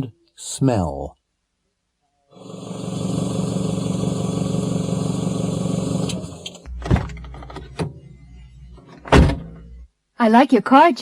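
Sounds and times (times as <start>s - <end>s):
car engine running: 2.4s - 6.7s
thump: 9.1s - 9.6s.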